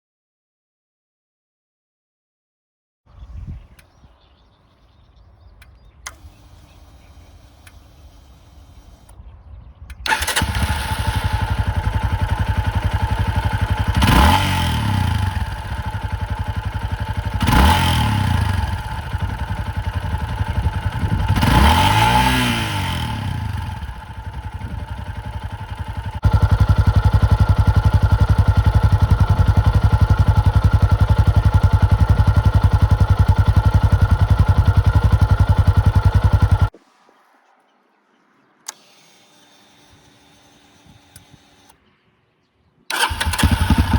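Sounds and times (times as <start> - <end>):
motorcycle engine idling and revving: 3.1 - 36.8, 42.9 - 43.9
single click: 5.6 - 7.9, 38.6 - 39.1.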